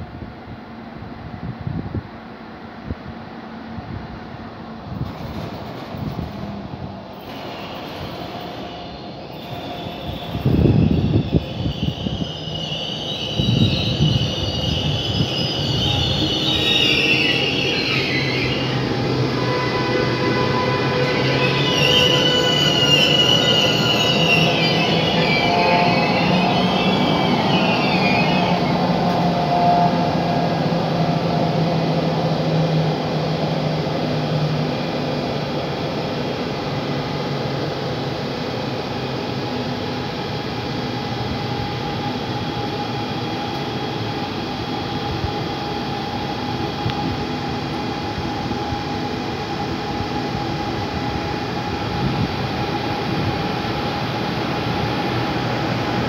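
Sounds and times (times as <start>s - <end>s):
train rolling noise: 0.0s - 56.0s
train brakes squealing: 5.1s - 32.8s
locomotive humming: 6.5s - 56.0s.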